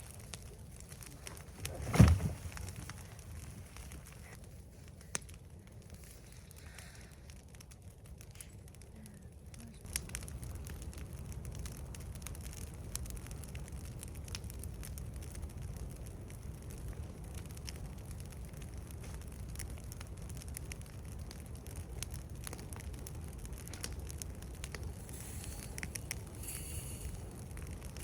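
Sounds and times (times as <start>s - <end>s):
fire crackling and popping: 0.0s - 28.0s.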